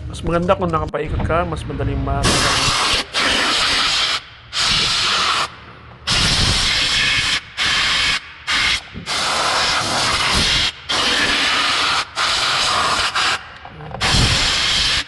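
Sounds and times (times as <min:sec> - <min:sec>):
compressed air blow gun hissing: 0:02.2 - 0:05.5, 0:06.1 - 0:13.4, 0:14.0 - 0:15.0.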